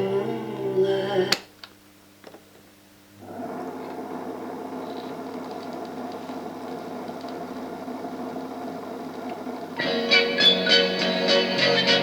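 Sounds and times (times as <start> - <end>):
music: 0.0 - 1.3, 9.8 - 12.0
speaker hiss and hum: 0.0 - 12.0.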